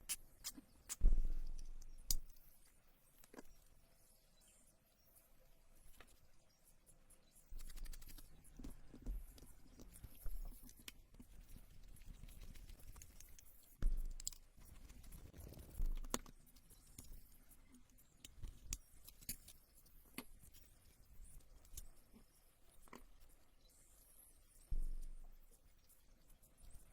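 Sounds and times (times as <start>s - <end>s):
small parts and tools clicking: 7.3s - 23.8s.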